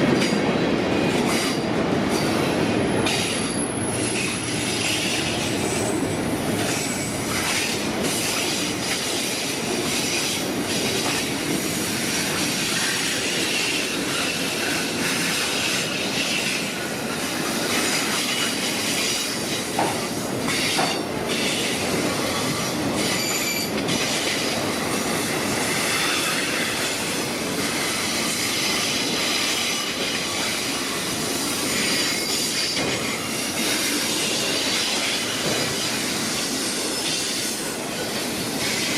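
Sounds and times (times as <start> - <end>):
train wheels on rails: 0.0 - 38.9
clicking over rail joints: 17.8 - 22.0
faint high wheel squeal: 23.0 - 23.8.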